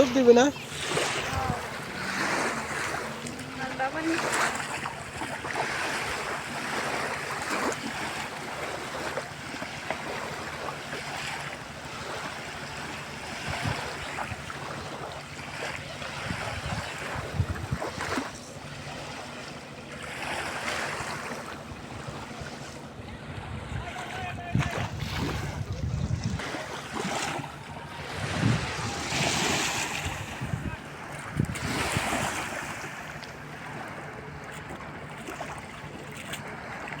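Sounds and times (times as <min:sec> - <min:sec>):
wind buffeting microphone: 0:00.0 - 0:04.2, 0:16.1 - 0:18.3, 0:21.0 - 0:32.8
water washing in swells: 0:00.0 - 0:37.0.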